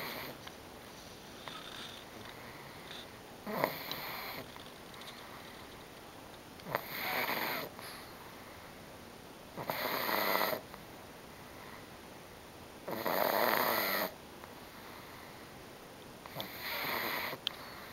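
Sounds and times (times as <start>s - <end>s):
dog snoring: 0.0s - 0.4s, 1.4s - 2.1s, 3.0s - 4.5s, 6.6s - 7.8s, 9.6s - 10.7s, 12.9s - 14.2s, 16.2s - 17.4s.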